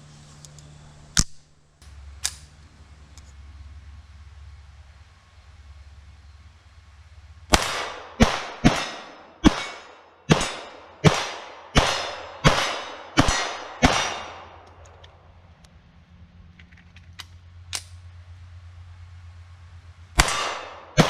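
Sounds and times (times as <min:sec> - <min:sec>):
pistol shots: 0:07.5 - 0:14.7, 0:20.2 - 0:21.0.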